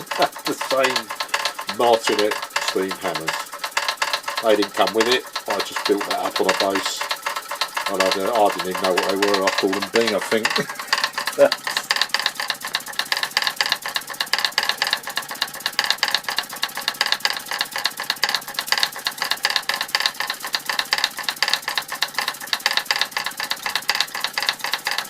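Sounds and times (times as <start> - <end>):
toy steam hammers tapping: 0.0 - 25.0.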